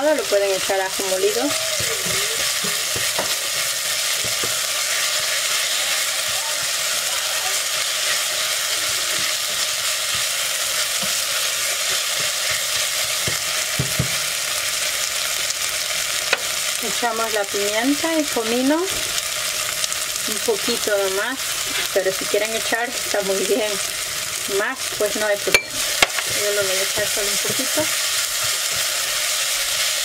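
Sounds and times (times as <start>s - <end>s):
onion sizzling in oil: 0.0s - 30.0s
spoon knocking against pot: 25.5s - 26.4s.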